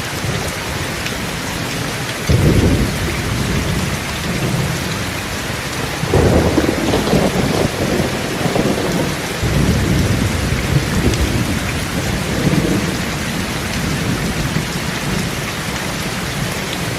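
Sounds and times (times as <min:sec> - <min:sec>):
steady rain: 0:00.0 - 0:16.9
deep thunder rumbles: 0:02.3 - 0:15.3.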